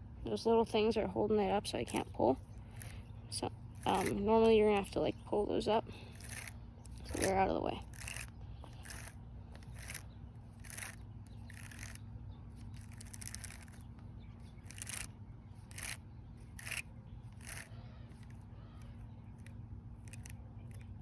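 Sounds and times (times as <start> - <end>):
steady low hum: 0.0 - 21.0
fishing line rasping off a reel: 1.9 - 4.9, 5.9 - 21.0.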